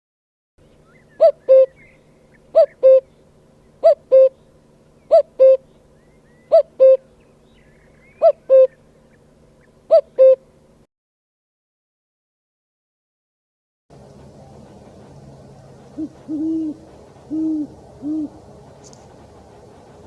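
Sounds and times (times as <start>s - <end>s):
faint chirps of other birds: 0.6s - 10.6s.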